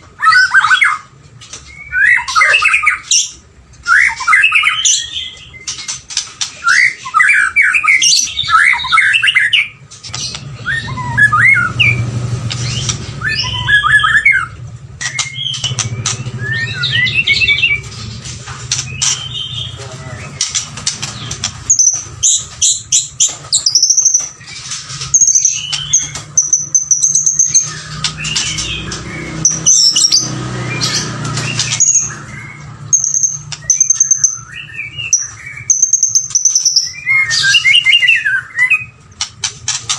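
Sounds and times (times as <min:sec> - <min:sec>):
bird singing whistled phrases: 0:01.7 - 0:05.7, 0:06.6 - 0:09.8, 0:10.5 - 0:12.0, 0:12.7 - 0:17.9, 0:21.7 - 0:24.4, 0:25.1 - 0:39.0
sharp clicks: 0:11.7 - 0:13.2, 0:15.0 - 0:16.5.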